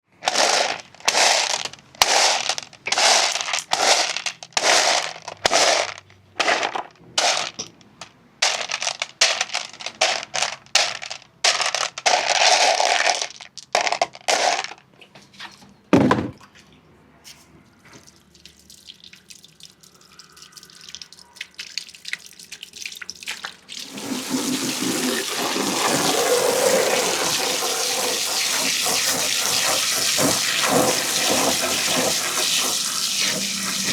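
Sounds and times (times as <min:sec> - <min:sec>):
marbles rolling down a track: 0:00.2 - 0:14.8, 0:23.8 - 0:33.9.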